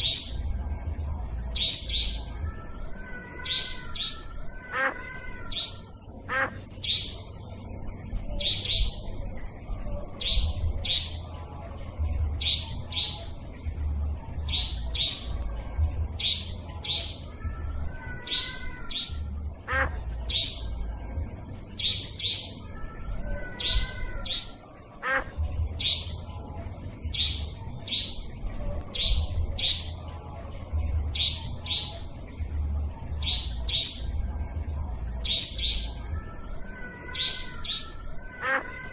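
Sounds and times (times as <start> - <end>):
nightjar sharp double calls: 1.6 - 2.3, 3.4 - 7.4, 8.4 - 9.1, 18.2 - 20.7, 21.8 - 22.6, 23.6 - 26.3, 27.1 - 28.4, 35.2 - 36.0
lower wavering bird call: 1.6 - 7.2, 36.8 - 38.9.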